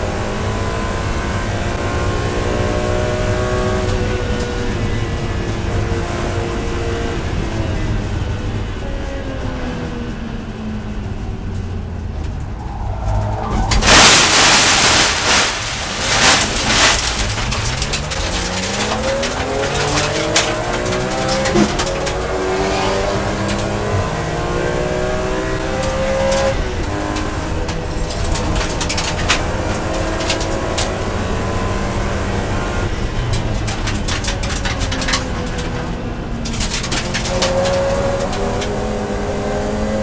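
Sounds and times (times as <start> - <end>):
racing car engine accelerating: 11.1 - 33.4.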